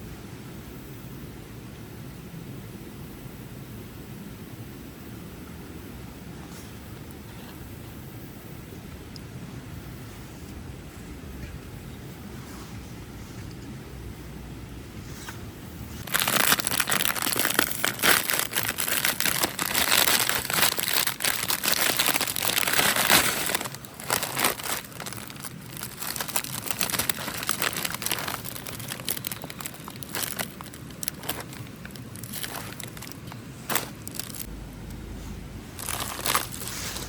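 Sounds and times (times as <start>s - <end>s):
material crinkling and rustling: 16.0s - 34.5s, 35.8s - 37.0s.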